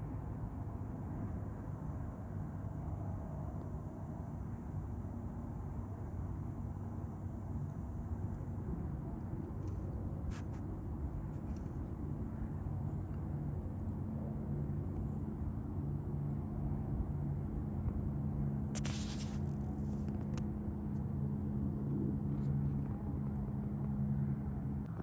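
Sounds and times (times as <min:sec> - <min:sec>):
brief rustle: 0:18.8 - 0:20.4.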